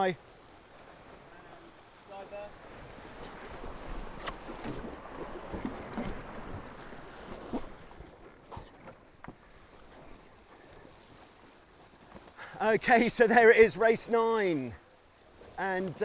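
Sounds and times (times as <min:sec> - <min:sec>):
water rushing along hulls: 0:00.0 - 0:16.0
knocks and clicks from rigging: 0:15.6 - 0:16.0.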